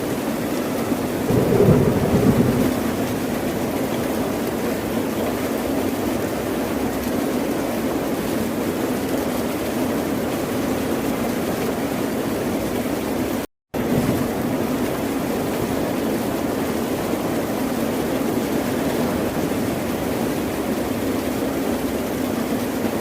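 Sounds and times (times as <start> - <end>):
ocean surf rushing: 1.3 - 4.2.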